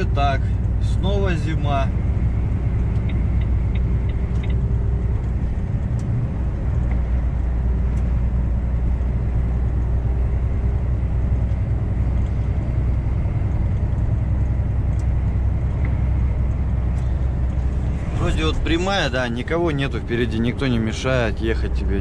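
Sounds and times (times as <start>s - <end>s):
truck diesel engine drone: 0.0s - 22.0s
faint ticks: 2.7s - 8.2s.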